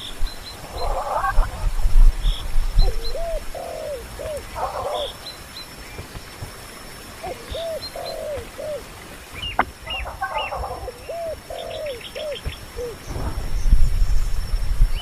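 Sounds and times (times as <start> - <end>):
birds calling: 0.0 - 15.0
low rumble: 13.0 - 15.0.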